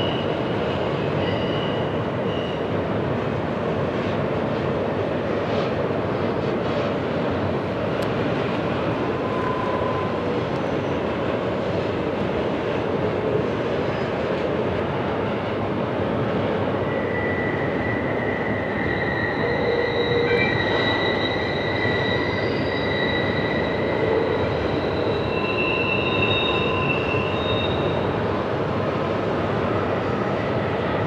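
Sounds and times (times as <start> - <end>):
freight train rumbling: 0.0 - 31.0
high-pitched wheel squeal: 1.2 - 2.7, 9.2 - 11.0, 16.8 - 28.2.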